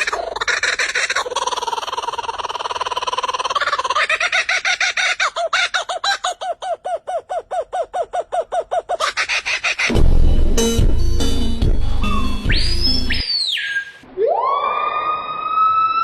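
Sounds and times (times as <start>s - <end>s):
bird calling repeated notes: 12.0s - 14.0s.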